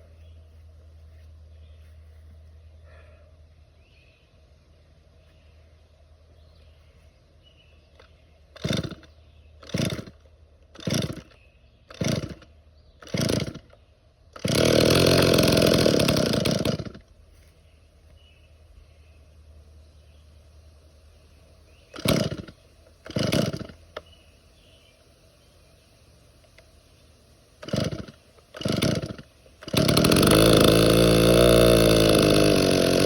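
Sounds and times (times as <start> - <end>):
chainsaw engine running: 7.9 - 17.1, 21.9 - 24.1, 27.6 - 33.0
chainsaw pull-start cord pulls: 7.9 - 17.1, 21.9 - 24.1, 27.6 - 33.0.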